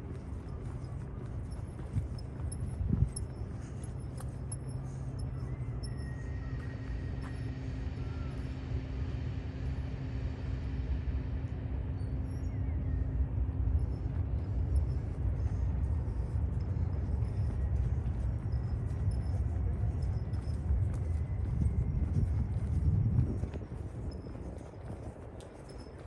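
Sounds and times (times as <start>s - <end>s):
city ambience rumble: 0.0s - 26.0s
faint high chirps: 0.7s - 9.0s.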